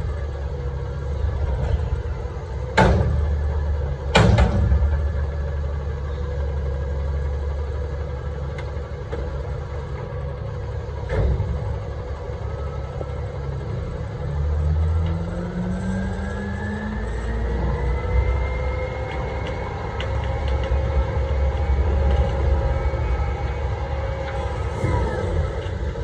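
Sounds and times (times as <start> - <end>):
truck diesel engine revving: 0.0 - 26.0.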